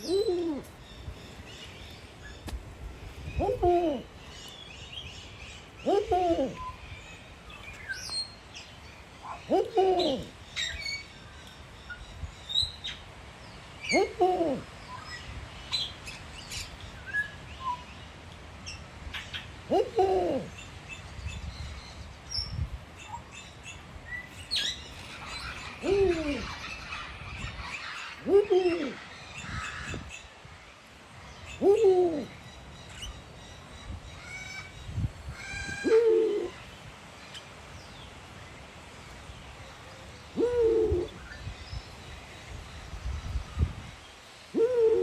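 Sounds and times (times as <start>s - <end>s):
bird calling: 0.0s - 2.5s, 3.3s - 13.0s, 13.8s - 15.0s, 19.2s - 20.8s, 22.4s - 30.4s, 31.4s - 38.1s.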